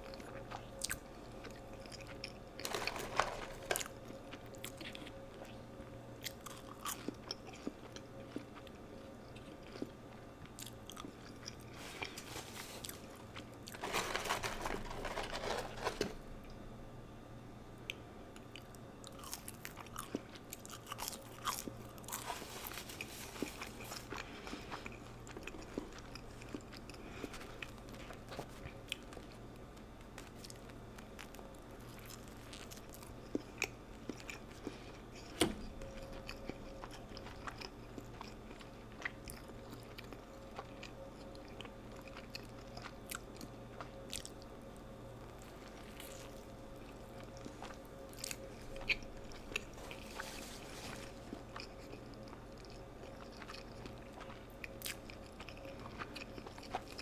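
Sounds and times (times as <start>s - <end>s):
person chewing crunchy food: 0.1s - 5.6s, 6.2s - 16.2s, 18.4s - 57.0s.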